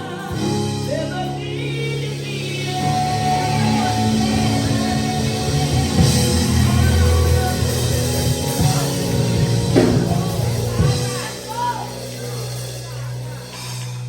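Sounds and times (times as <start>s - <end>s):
band playing instrumental music: 0.0s - 14.0s
bass line: 0.0s - 14.0s
drum kit: 0.0s - 14.0s.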